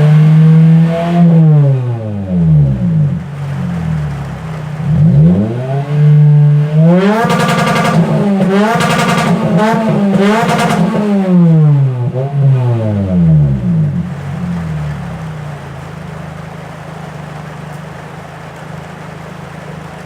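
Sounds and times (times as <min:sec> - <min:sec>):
car engine free-revving: 0:00.0 - 0:20.0.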